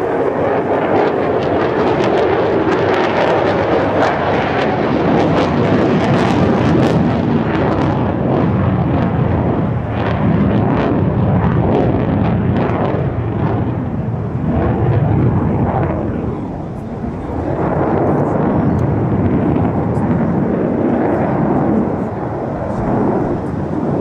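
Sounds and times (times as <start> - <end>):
jet engine roar with crackle: 0.0 - 24.0.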